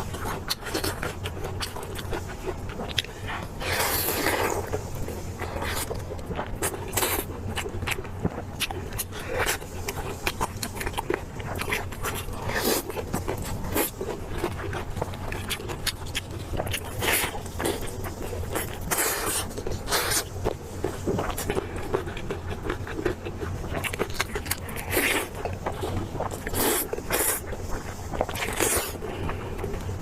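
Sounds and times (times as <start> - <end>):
chewing and biting meat: 0.0 - 30.0.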